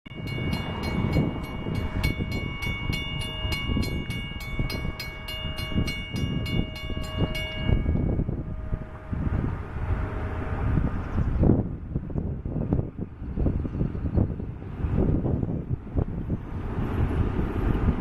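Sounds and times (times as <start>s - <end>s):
railroad bell ringing: 0.1s - 10.6s
train rumbling: 0.1s - 18.0s.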